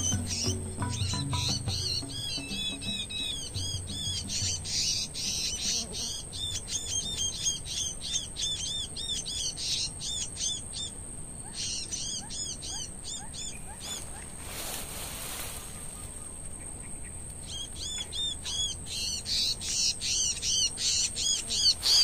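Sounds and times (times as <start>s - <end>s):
steady high tone: 0.0s - 4.7s
warbler chip calls: 0.0s - 14.7s, 15.3s - 22.0s
brief rustle: 13.8s - 16.1s.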